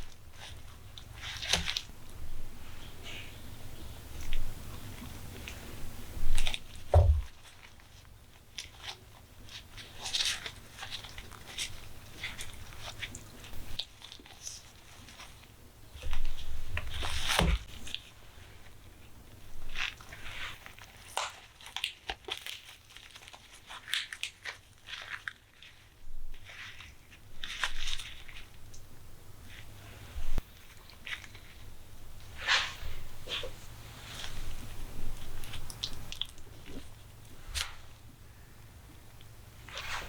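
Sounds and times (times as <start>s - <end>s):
food crunching and tearing: 0.0s - 2.0s, 6.3s - 18.8s, 19.4s - 28.8s, 30.4s - 32.6s, 33.2s - 38.0s
heavy thuds: 6.8s - 7.3s.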